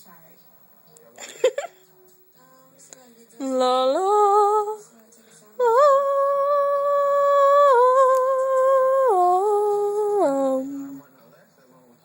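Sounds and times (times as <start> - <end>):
woman humming: 5.6 - 11.0.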